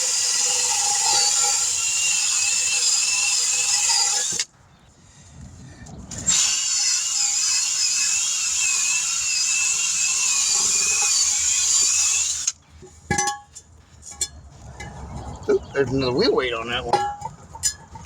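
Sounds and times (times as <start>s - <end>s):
rotary tool whining: 0.0s - 4.5s, 6.1s - 12.6s.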